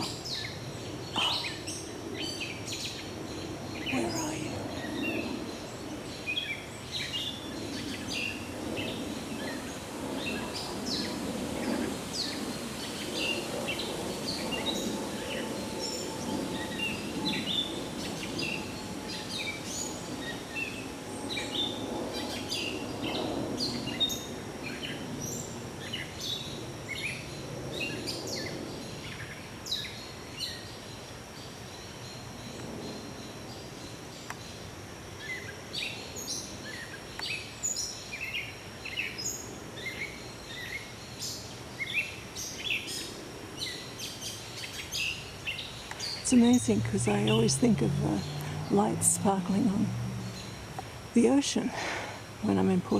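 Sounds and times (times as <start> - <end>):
songbirds chirping: 0.0 - 52.9
low background rumble: 45.8 - 52.9.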